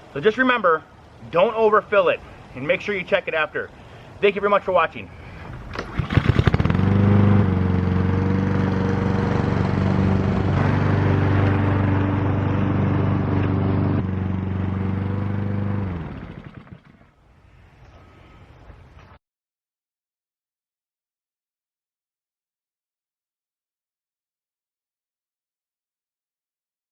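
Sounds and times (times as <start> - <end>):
push mower engine running: 5.8 - 17.1.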